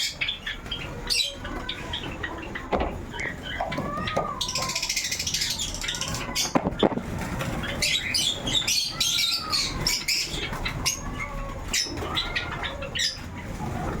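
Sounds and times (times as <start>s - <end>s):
sparrows chirping: 0.0s - 14.0s
lower arching bird calls: 7.4s - 13.3s.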